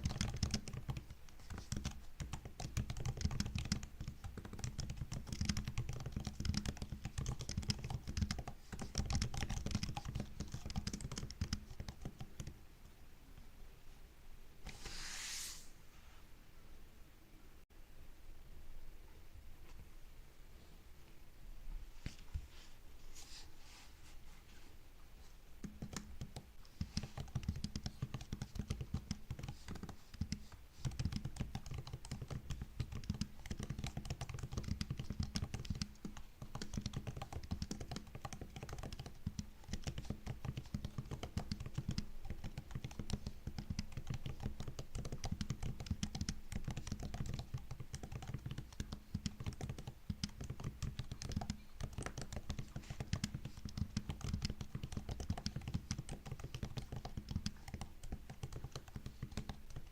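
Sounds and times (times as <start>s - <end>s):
fast typing on laptop keyboard: 0.0s - 12.6s, 25.6s - 59.9s.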